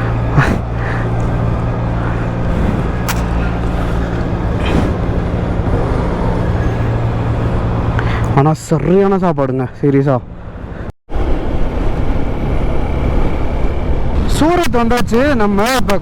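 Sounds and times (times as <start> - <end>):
road noise: 0.0 - 16.0
sharp clicks: 3.0 - 3.4.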